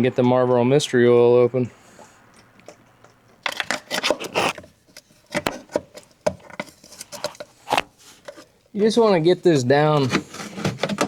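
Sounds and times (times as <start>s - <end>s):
plastic cap scraping and crackling: 3.4s - 8.5s.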